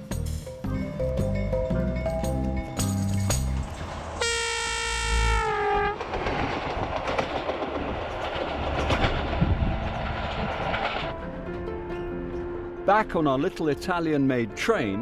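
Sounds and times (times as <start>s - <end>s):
train rumble and wheel clicks: 1.1s - 13.2s
train horn: 4.2s - 6.0s.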